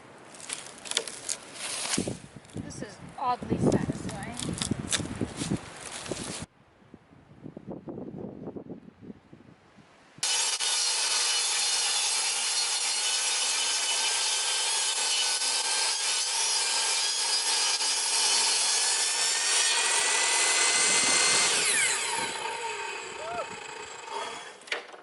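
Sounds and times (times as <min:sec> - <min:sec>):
power saw cutting wood: 0:10.2 - 0:24.8.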